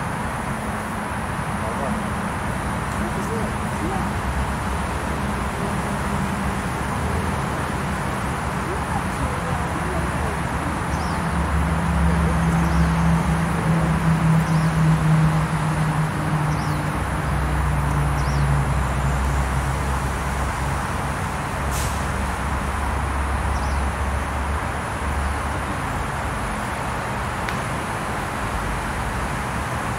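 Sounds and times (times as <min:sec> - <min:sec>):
traffic rumble: 0:00.0 - 0:29.9
small birds chirping: 0:08.5 - 0:15.0, 0:16.2 - 0:19.3, 0:23.5 - 0:24.0.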